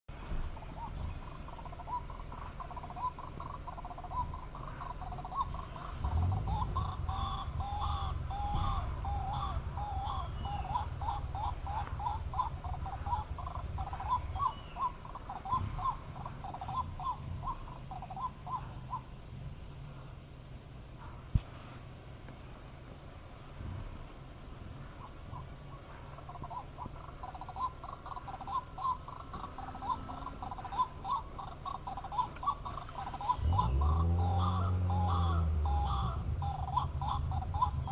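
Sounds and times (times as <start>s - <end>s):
high insect drone: 0.1s - 37.9s
low rumble: 33.3s - 37.9s.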